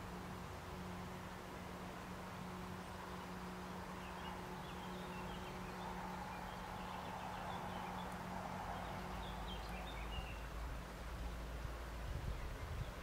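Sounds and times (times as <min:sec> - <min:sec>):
steady rushing background noise: 0:00.0 - 0:13.0
small birds chirping: 0:01.2 - 0:13.0.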